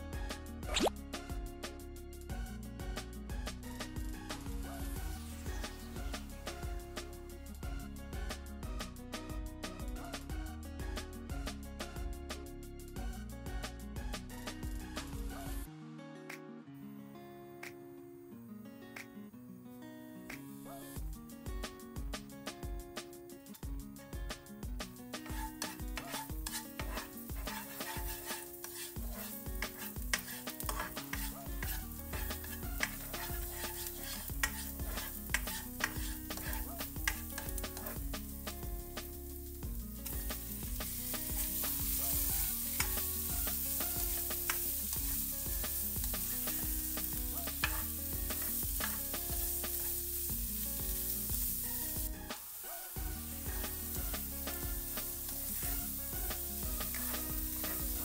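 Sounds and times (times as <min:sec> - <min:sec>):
spatula scraping and tapping pan: 0:25.2 - 0:39.1, 0:40.0 - 0:50.0, 0:56.3 - 0:58.0
garlic sizzling in hot oil: 0:25.2 - 0:58.0.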